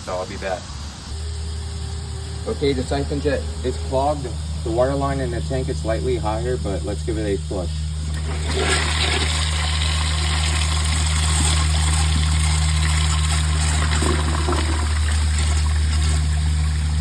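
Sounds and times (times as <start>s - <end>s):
low hum: 0.0s - 17.0s
water rushing into toilet bowl: 8.0s - 17.0s.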